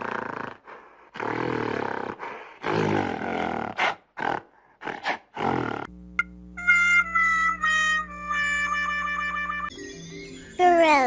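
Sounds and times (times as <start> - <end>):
gorilla roaring and grunting: 0.0 - 5.9
light plucked music: 6.2 - 11.0.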